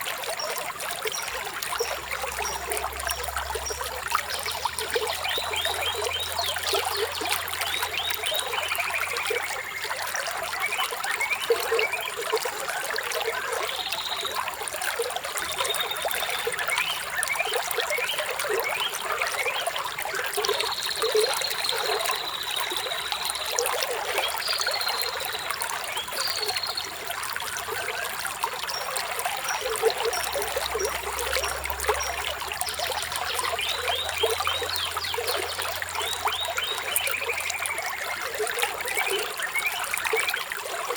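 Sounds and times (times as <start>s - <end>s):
stream trickling over stones: 0.0s - 40.9s
small birds chirping: 13.4s - 40.9s.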